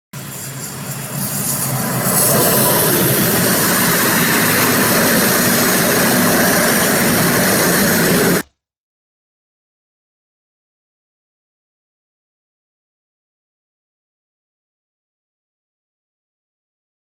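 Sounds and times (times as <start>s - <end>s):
freight train passing: 0.2s - 8.4s.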